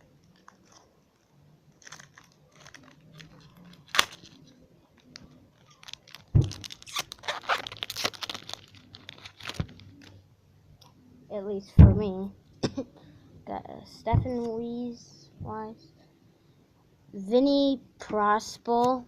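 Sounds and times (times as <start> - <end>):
wrapper crinkling and tearing: 0.0 - 10.2.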